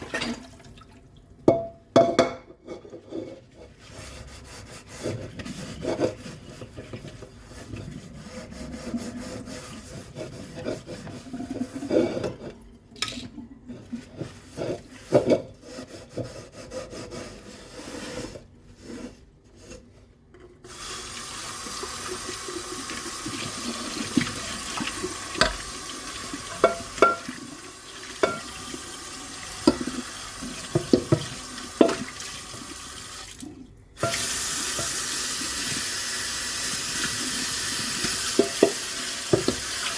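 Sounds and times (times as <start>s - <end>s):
tap water running: 0.0s - 1.3s, 20.7s - 39.9s
dishes knocking and scrubbing: 1.5s - 3.8s, 5.0s - 7.9s, 9.6s - 16.4s, 23.2s - 28.7s, 29.6s - 32.2s, 38.0s - 39.9s
dishware clinking: 26.5s - 27.3s, 28.2s - 28.5s.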